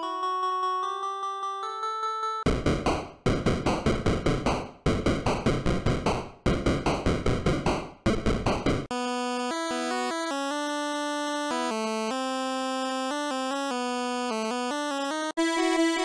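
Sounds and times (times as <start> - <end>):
drum machine hits: 2.5 - 8.9
synthesizer melody: 8.9 - 16.0.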